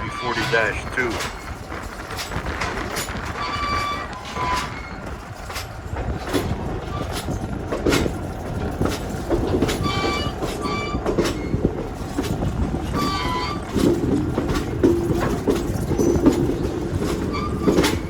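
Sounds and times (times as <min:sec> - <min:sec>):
short high wheel squeals: 0:00.0 - 0:01.5, 0:03.3 - 0:05.6, 0:09.8 - 0:11.6, 0:12.9 - 0:13.9, 0:15.6 - 0:18.0
railcar rumble on track: 0:00.0 - 0:18.0
wheels clicking and knocking: 0:00.0 - 0:18.0.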